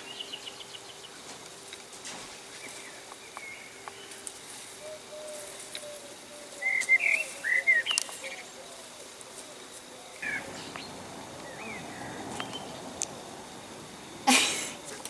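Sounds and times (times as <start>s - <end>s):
birds chirping: 10.2s - 15.0s.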